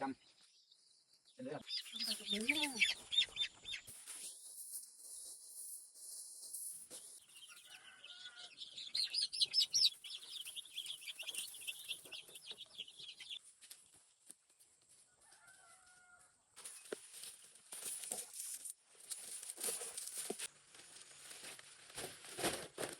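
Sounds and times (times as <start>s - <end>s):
chickens calling: 1.6s - 3.9s, 7.2s - 13.4s
chicken clucks: 1.7s - 3.9s, 7.2s - 13.4s.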